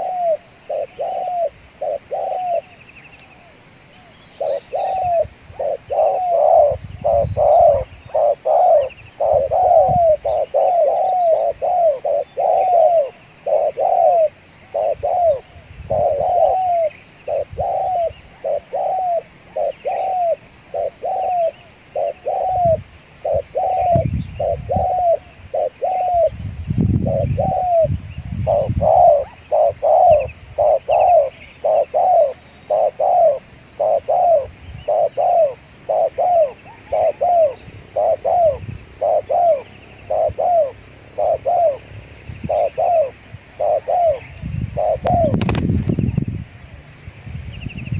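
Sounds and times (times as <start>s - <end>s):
dove cooing: 0.0s - 26.4s, 27.0s - 46.0s.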